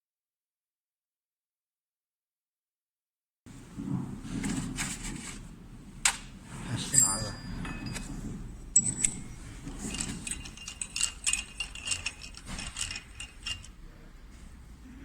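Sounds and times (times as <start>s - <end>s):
small metal parts clinking: 6.9s - 13.8s.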